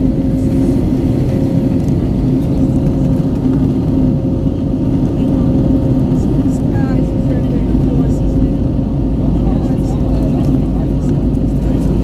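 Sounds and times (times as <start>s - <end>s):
airplane cabin engine drone: 0.0s - 12.0s
constant hum: 0.0s - 12.0s.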